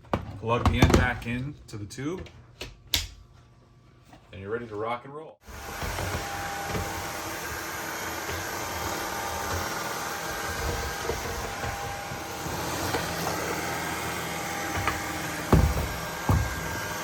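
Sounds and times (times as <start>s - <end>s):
stick vacuum running: 5.4s - 17.0s.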